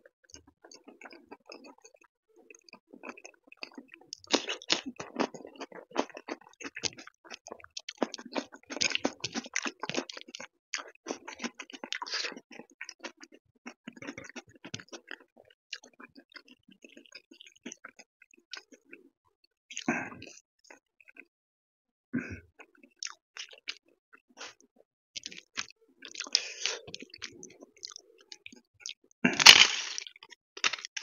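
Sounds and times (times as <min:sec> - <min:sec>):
close chewing of food: 0:00.2 - 0:19.1, 0:19.7 - 0:21.3, 0:22.6 - 0:31.0
wet smacks and crunchy clicks: 0:00.3 - 0:19.0, 0:25.2 - 0:31.0.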